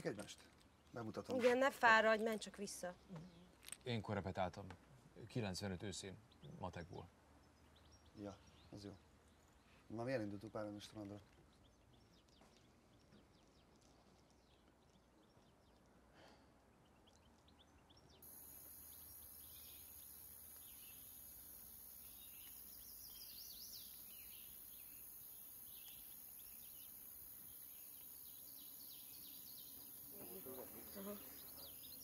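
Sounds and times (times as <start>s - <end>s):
small birds chirping and twittering: 0.0s - 32.0s
steady high hiss: 18.2s - 32.0s.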